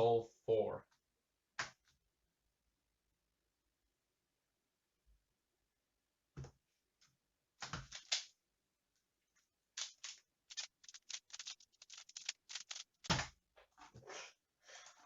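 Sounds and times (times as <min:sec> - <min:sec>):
puzzle cube clicking turns: 0:07.9 - 0:08.3, 0:09.8 - 0:13.3.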